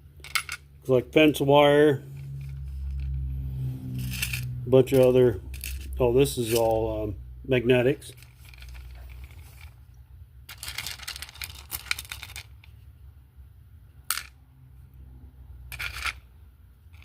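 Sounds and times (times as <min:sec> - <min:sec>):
metal scraps clinking and rattling: 0:10.5 - 0:12.6.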